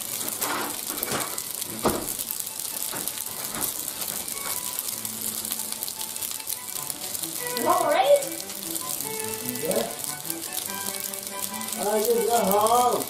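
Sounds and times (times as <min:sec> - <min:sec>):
oil pops and crackles: 0:00.0 - 0:13.0
pasta sizzling in oil: 0:00.0 - 0:13.0.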